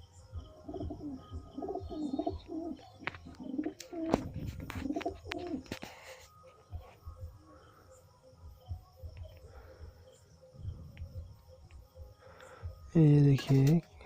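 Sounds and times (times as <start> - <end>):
pigeons cooing: 0.0 - 7.0.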